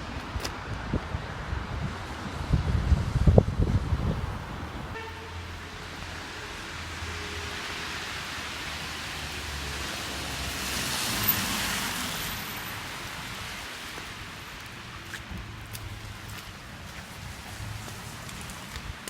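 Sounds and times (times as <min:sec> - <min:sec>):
vehicle tyres hissing on street: 0:01.9 - 0:19.0.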